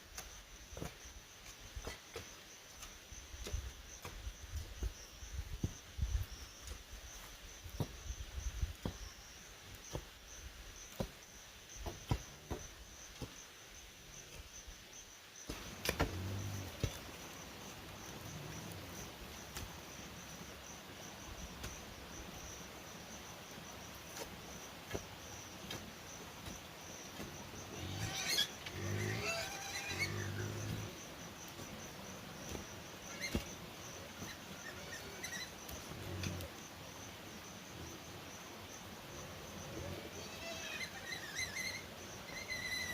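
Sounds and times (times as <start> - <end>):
high-pitched insect buzz: 27.6 - 31.0, 34.2 - 36.4.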